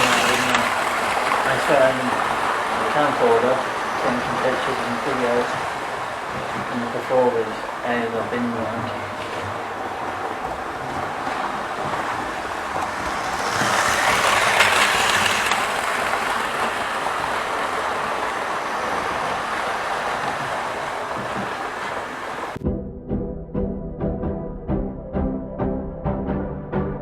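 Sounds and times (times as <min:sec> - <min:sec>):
model train rattling hiss: 0:00.0 - 0:02.2, 0:13.1 - 0:18.1.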